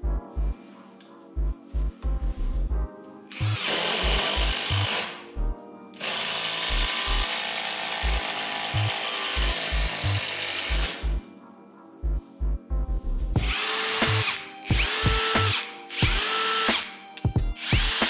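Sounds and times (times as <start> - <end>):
background music with steady beat: 0.0 - 18.0
cordless impact driver running: 3.4 - 5.2, 6.0 - 11.0, 13.4 - 17.0, 17.6 - 18.0.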